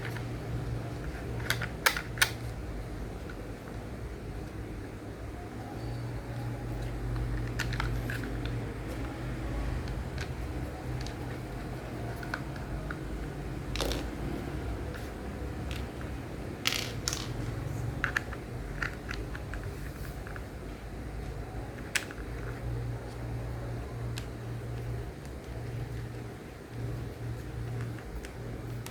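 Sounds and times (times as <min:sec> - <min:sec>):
steady low hum: 0:00.0 - 0:28.9
plastic toy parts clicking together: 0:01.0 - 0:02.5, 0:07.1 - 0:08.6, 0:13.7 - 0:14.1, 0:16.7 - 0:17.4, 0:18.0 - 0:20.5, 0:21.8 - 0:22.6.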